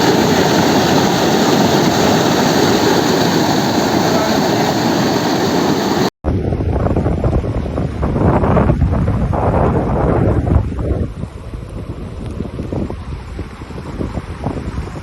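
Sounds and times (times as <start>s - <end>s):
floodwater rushing: 0.0s - 6.1s
wind buffeting microphone: 0.0s - 15.0s.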